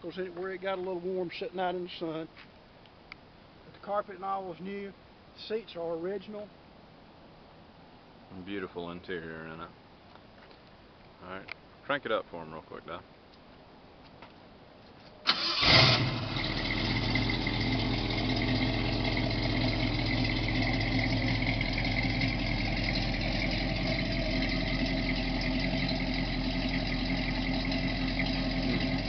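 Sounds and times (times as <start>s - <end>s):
car engine starting and idling: 15.3s - 29.0s.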